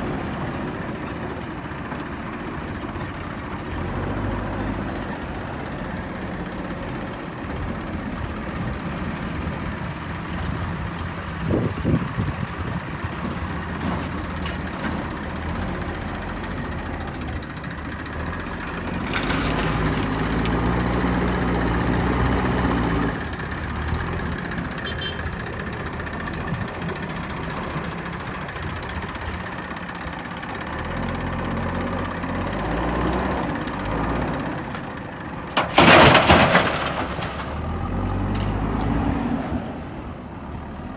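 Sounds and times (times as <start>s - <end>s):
diesel engine revving: 3.2s - 25.1s, 30.6s - 40.9s.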